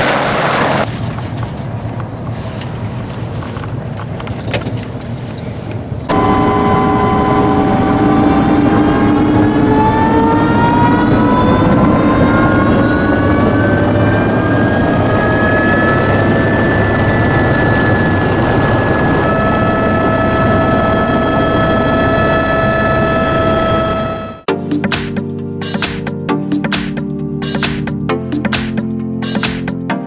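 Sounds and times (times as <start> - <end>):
helicopter rotor rumble: 6.0 - 24.5
helicopter turbine whine: 6.1 - 24.5.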